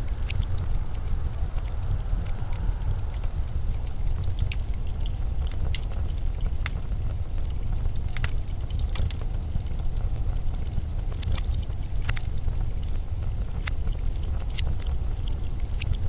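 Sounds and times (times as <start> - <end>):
blizzard wind rumbling: 0.0 - 11.1
faint sharp ticks: 0.0 - 16.0.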